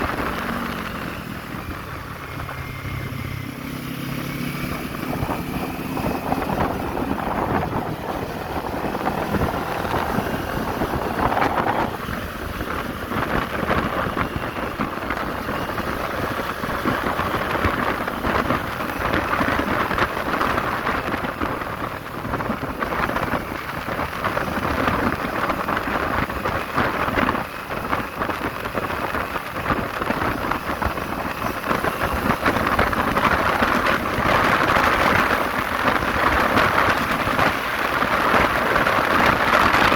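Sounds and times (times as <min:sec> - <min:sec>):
motorcycle engine: 0:00.0 - 0:39.9
wind buffeting microphone: 0:00.0 - 0:39.9.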